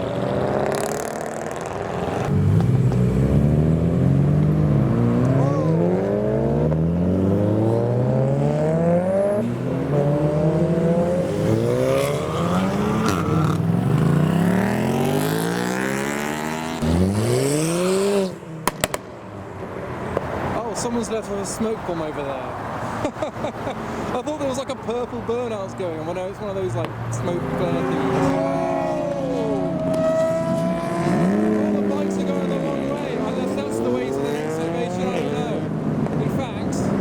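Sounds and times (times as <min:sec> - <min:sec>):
loud engine rev: 0:00.0 - 0:19.0, 0:26.6 - 0:37.0
cars accelerating and revving: 0:00.0 - 0:37.0
sharp exhaust cracks: 0:16.8 - 0:19.5.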